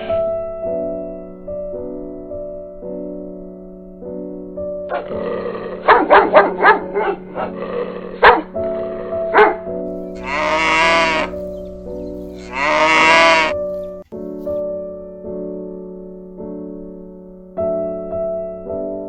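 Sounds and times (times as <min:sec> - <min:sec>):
soft piano music: 0:00.0 - 0:19.0
goat bleating: 0:10.2 - 0:11.5, 0:12.3 - 0:13.6.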